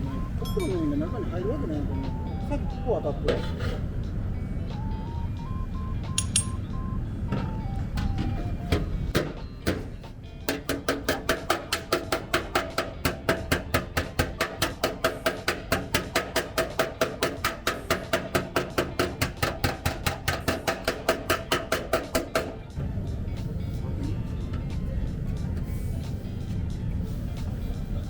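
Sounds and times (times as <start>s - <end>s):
hammer tapping metal panel: 10.5s - 22.6s.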